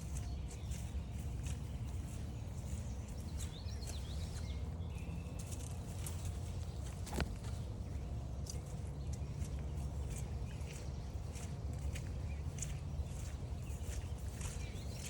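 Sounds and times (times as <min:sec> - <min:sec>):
footsteps on forest trail: 0:00.0 - 0:15.0
low steady rumble: 0:00.0 - 0:15.0
warbling birdsong: 0:00.0 - 0:15.0.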